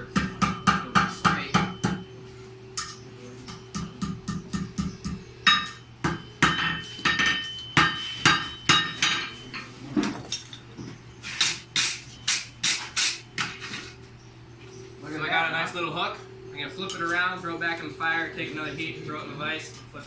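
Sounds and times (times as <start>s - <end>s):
hammer striking hot metal: 0.1s - 2.1s, 2.8s - 9.4s.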